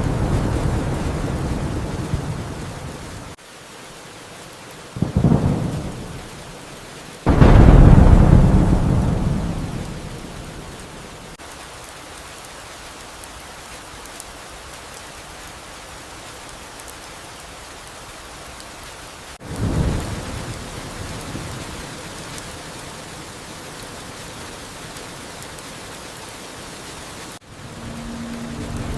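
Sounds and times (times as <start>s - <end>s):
thunderclaps: 0.0s - 3.4s, 5.0s - 6.3s, 7.3s - 11.4s, 19.4s - 22.5s
steady rain: 0.0s - 28.9s.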